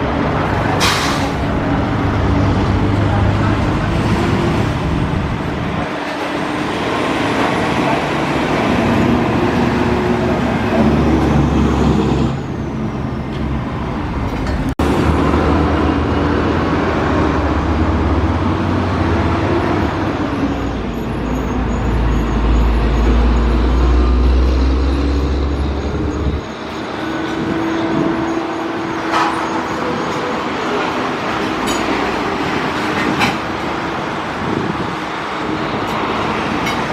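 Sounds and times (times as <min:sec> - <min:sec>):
heavy vehicles passing: 0:00.0 - 0:36.9.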